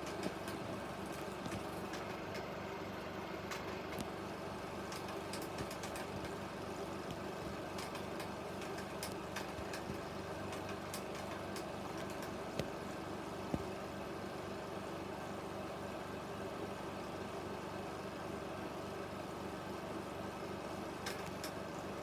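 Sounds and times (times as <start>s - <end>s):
film projector motor hum: 0.0s - 22.0s.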